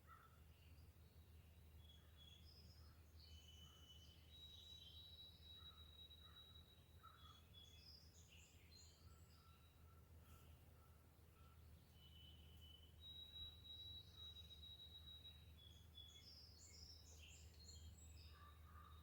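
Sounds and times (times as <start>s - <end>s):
songbirds chirping and whistling: 1.8s - 9.8s, 11.7s - 19.0s
bird long steady whistle: 13.0s - 16.2s.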